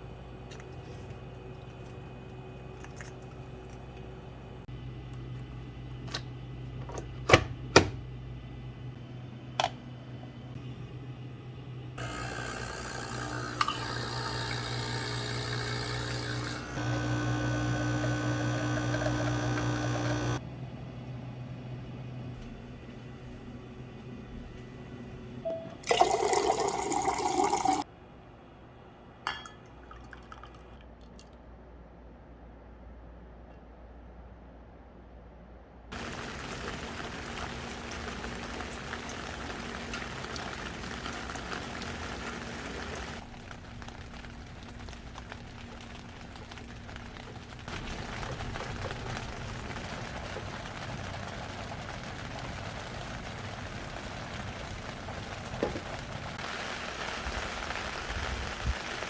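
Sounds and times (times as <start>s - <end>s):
liquid pouring into vessel: 25.7s - 27.8s, 29.3s - 31.4s
heavy rain hissing: 35.9s - 59.0s.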